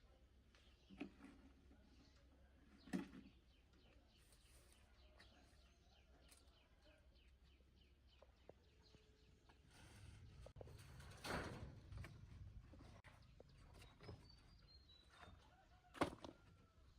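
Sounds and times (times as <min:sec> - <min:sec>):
birds chirping: 0:01.8 - 0:16.9.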